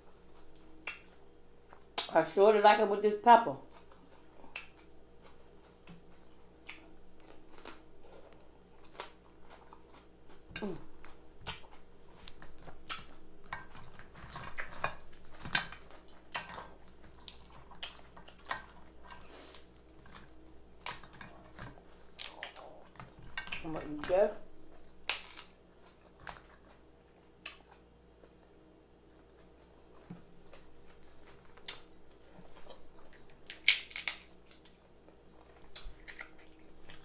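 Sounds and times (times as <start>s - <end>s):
wet chewing and slurping: 11.1s - 23.6s.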